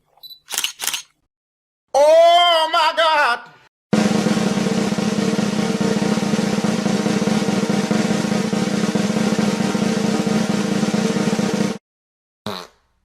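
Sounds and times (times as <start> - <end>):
drum roll: 3.9 - 11.8.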